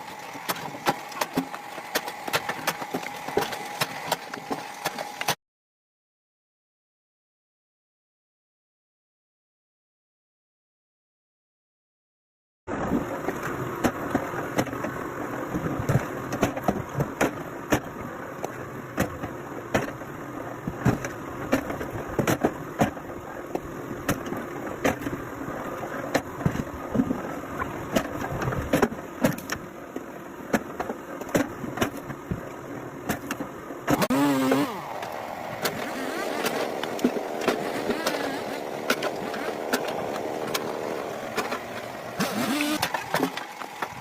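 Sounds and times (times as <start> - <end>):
firewood machinery running: 0.0 - 5.4, 33.1 - 44.0
sharp knocks and cracks: 15.8 - 20.0, 27.9 - 29.6, 30.5 - 32.4.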